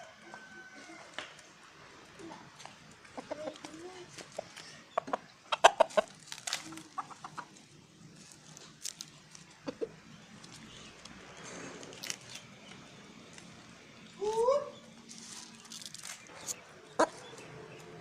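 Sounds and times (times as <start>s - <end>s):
rooster clucking: 3.1s - 7.6s, 9.6s - 10.0s, 16.3s - 17.8s.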